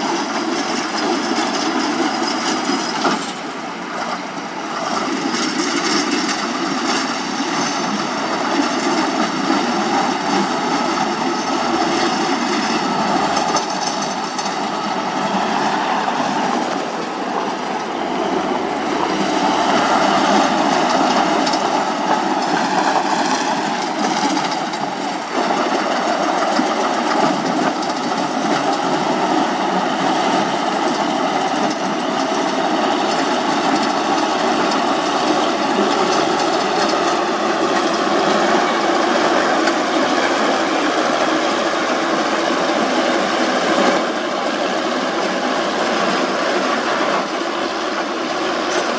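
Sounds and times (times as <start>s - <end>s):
heavy machinery engine drone: 0.0s - 48.9s
machinery clattering: 4.8s - 32.4s.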